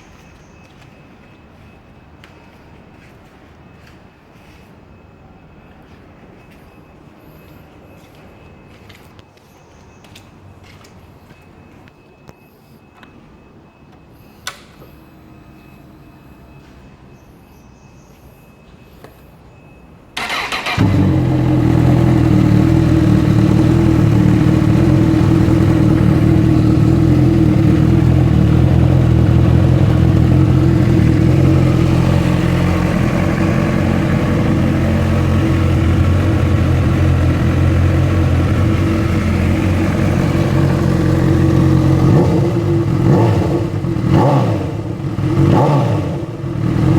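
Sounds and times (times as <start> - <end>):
engine throttle revs: 20.2 - 46.9
motorcycle engine idling: 20.2 - 46.9.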